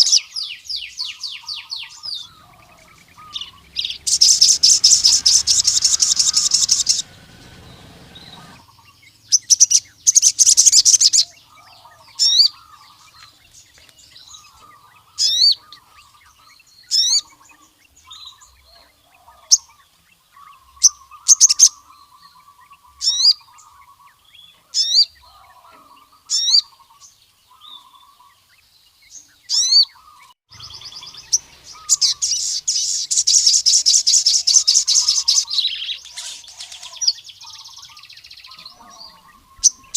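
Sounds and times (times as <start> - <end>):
sunbird singing high trills: 0.0 - 39.9
sharp rising bird chirps: 0.7 - 13.2, 29.5 - 39.9
faint low warbling: 2.0 - 8.6.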